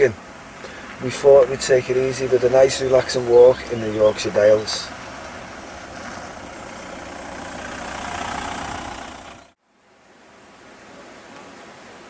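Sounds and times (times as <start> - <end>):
vehicle engine rumbling: 0.0 - 9.6.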